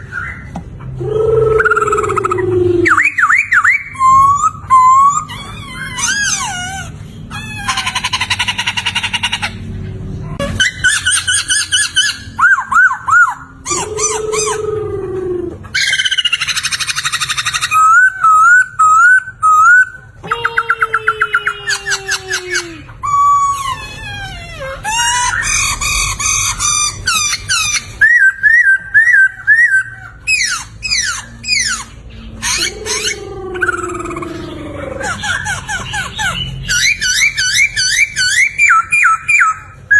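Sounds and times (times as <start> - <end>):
bird singing varied whistled phrases: 1.3 - 5.3, 27.1 - 31.9, 36.6 - 39.9.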